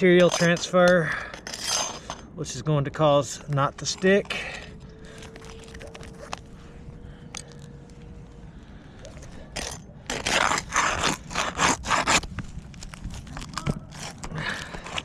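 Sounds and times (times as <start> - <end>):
tool scraping under shingle: 0.0 - 2.3, 3.4 - 6.6, 9.0 - 15.0
light scratches and clicks: 5.1 - 6.5.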